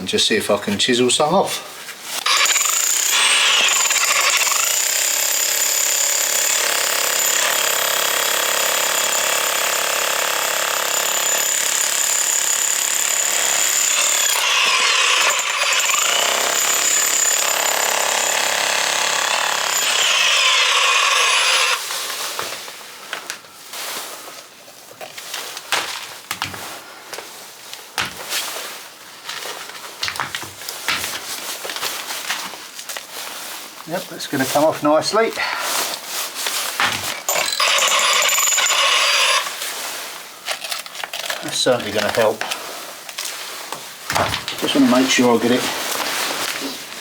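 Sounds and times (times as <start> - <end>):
electric chisel hammer whining: 2.2 - 21.9, 36.8 - 39.6.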